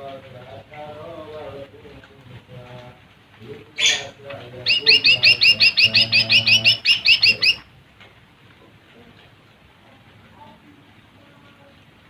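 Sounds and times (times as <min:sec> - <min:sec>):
bird singing high chirps: 0:03.8 - 0:07.7.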